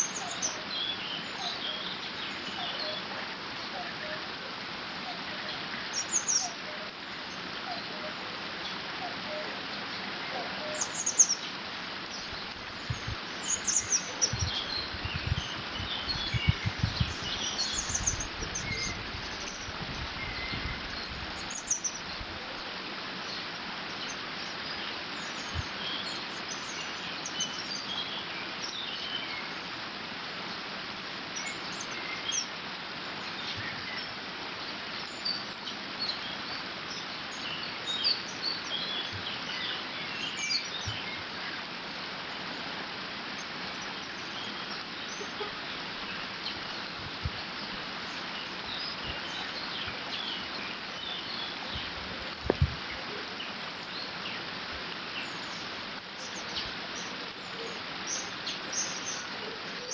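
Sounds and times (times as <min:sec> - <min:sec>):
small birds chirping: 0:00.0 - 0:04.2, 0:05.0 - 0:29.8, 0:31.3 - 0:59.9
wind buffeting microphone: 0:12.2 - 0:22.4, 0:46.9 - 0:47.9, 0:51.7 - 0:53.0.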